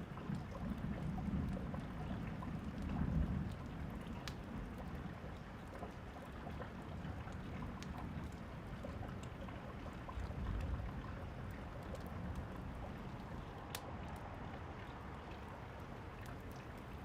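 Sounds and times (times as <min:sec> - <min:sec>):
steady rain: 0:00.0 - 0:17.0
wood fire crackling: 0:10.6 - 0:14.2.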